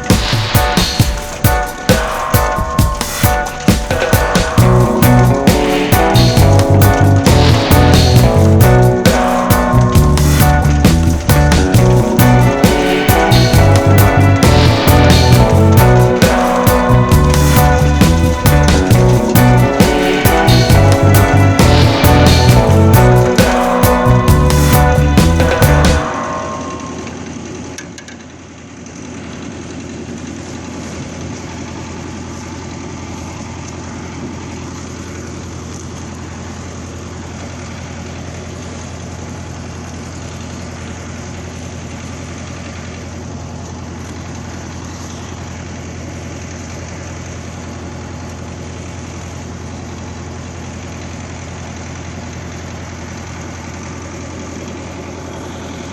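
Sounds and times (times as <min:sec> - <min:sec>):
tractor diesel engine idling: 0:04.6 - 0:09.1, 0:09.7 - 0:26.1.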